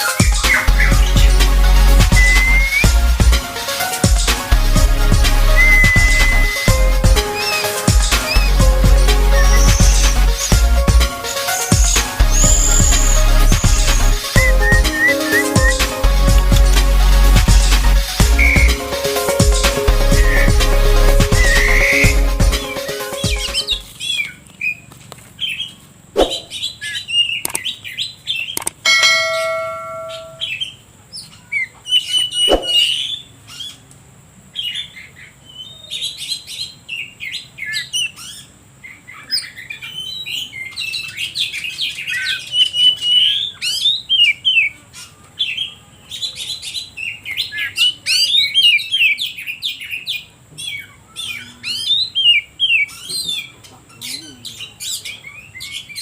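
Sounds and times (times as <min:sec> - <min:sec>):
bird singing chirps and trills: 0:00.0 - 0:04.0, 0:05.4 - 0:24.8, 0:25.4 - 0:33.8, 0:34.6 - 0:56.0
steady ringing tone: 0:28.9 - 0:30.6.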